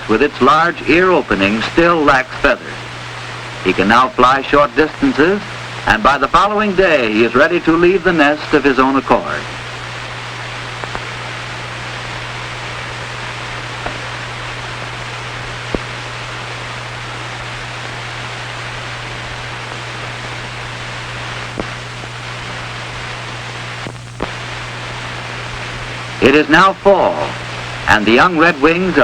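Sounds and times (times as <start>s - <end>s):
film soundtrack hiss and hum: 0.0s - 29.0s
faint clicks and pops: 10.2s - 26.2s.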